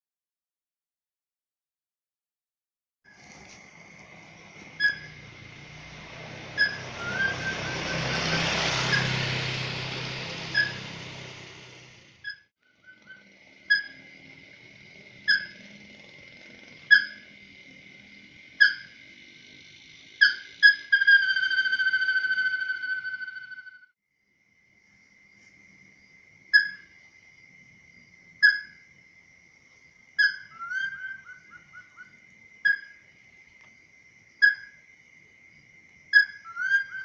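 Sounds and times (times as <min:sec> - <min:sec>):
high insect-like drone: 0:03.1 - 0:23.7
rushing hiss: 0:03.2 - 0:12.2
whistled bird call notes: 0:04.7 - 0:09.6, 0:10.2 - 0:11.3, 0:12.2 - 0:14.1, 0:15.2 - 0:15.7, 0:16.9 - 0:17.4, 0:18.6 - 0:19.0, 0:20.1 - 0:23.9, 0:26.6 - 0:26.8, 0:28.4 - 0:28.8, 0:30.2 - 0:33.0, 0:34.4 - 0:34.8, 0:36.1 - 0:37.0.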